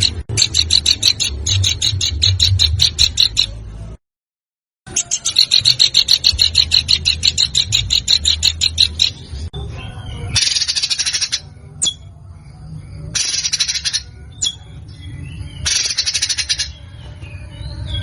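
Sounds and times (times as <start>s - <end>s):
sharp high bird chips: 0.0s - 3.6s, 4.9s - 9.5s, 10.4s - 12.2s, 13.1s - 14.8s, 15.6s - 16.9s
harsh rapid bird trills: 0.0s - 3.7s, 4.9s - 18.0s.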